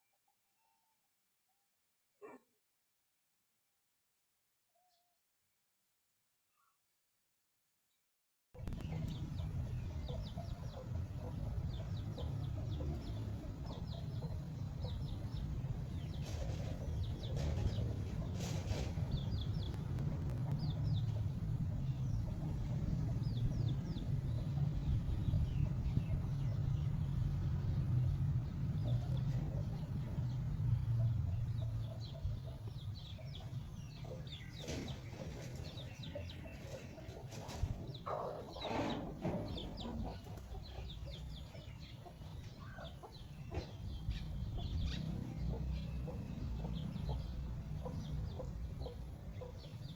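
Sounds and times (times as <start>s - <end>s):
chickens clucking: 8.6s - 27.8s, 28.4s - 49.9s
steady low rumble: 8.6s - 34.4s.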